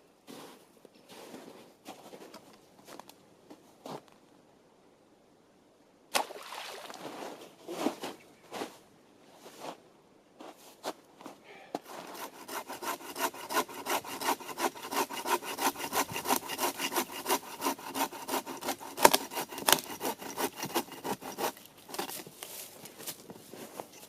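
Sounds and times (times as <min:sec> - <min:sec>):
saw cutting wood: 0:11.9 - 0:22.2.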